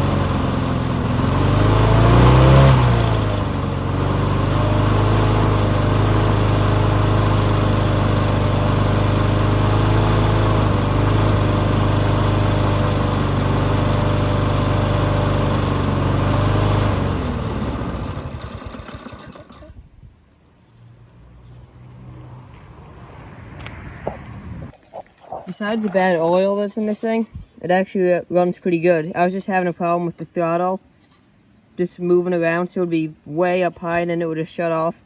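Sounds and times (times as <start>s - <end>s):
lawn mower engine running: 0.0s - 19.8s.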